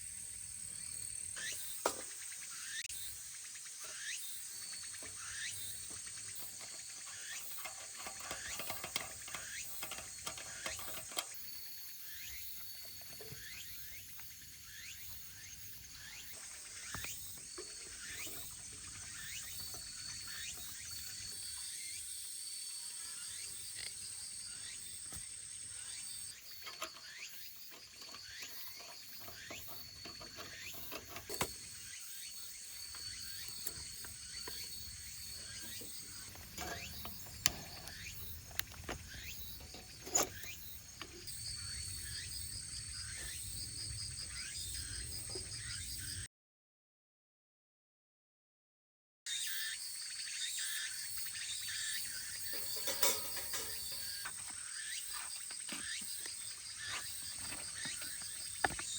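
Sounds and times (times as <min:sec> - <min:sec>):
insects chirping: 0:00.0 - 0:46.3, 0:49.3 - 0:58.9.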